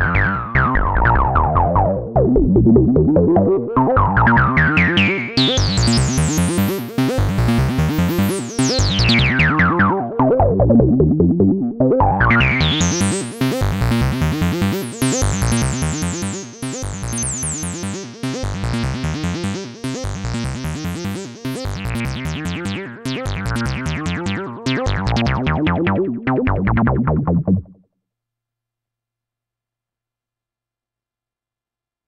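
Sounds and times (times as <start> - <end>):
synthesizer acid bassline: 0.0 - 27.8.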